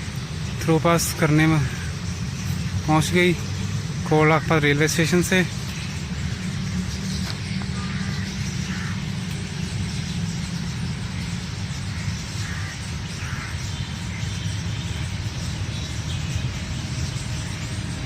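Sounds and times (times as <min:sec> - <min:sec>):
train rumbling along rails: 0:00.0 - 0:18.0.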